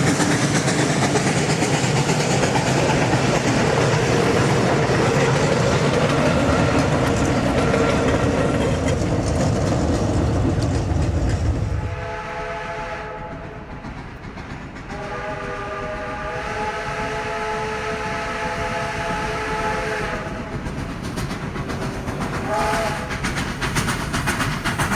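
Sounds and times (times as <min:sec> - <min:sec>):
train rolling past rumbling: 0:00.0 - 0:24.9
steam whistle blasts: 0:11.8 - 0:13.6, 0:14.9 - 0:20.4, 0:22.4 - 0:23.2.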